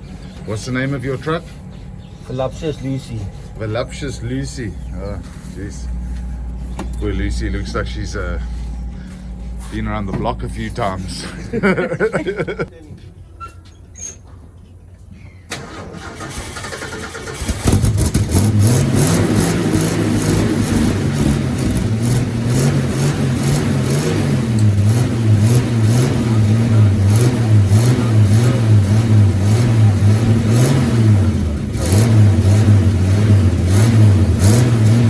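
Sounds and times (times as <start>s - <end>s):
truck engine starting and revving: 0.0s - 12.7s, 15.5s - 35.0s.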